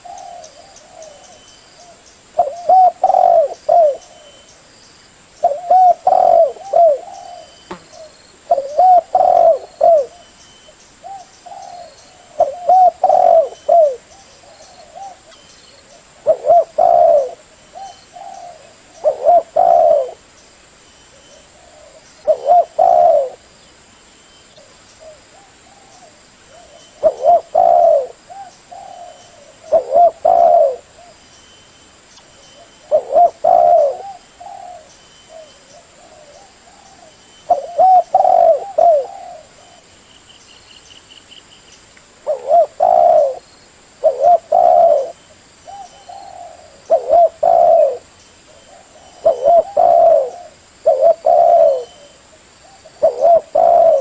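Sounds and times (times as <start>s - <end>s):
dove cooing: 0.0s - 4.5s, 5.4s - 10.3s, 11.0s - 20.2s, 21.1s - 23.5s, 25.0s - 31.2s, 32.6s - 39.9s, 42.2s - 43.4s, 44.0s - 54.0s.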